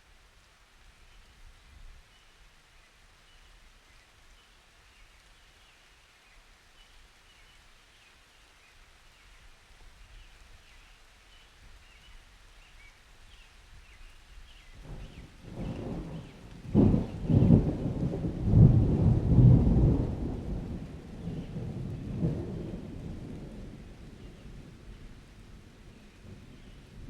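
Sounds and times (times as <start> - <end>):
faint steady rain: 0.0 - 27.0.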